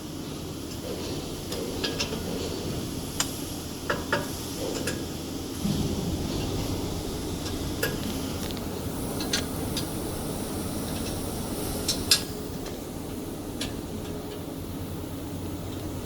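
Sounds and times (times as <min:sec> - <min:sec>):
low hum: 0:05.6 - 0:11.7.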